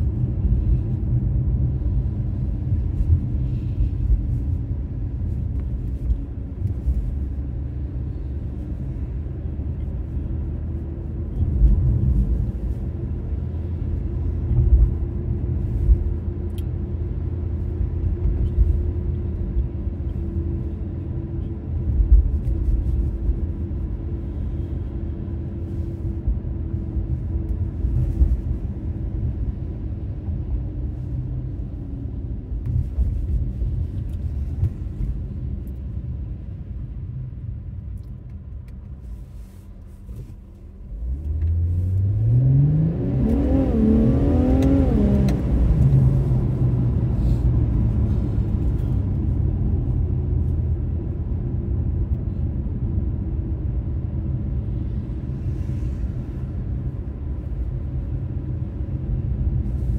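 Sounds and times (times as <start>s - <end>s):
road noise: 0.0s - 59.9s
car engine accelerating: 41.0s - 49.1s.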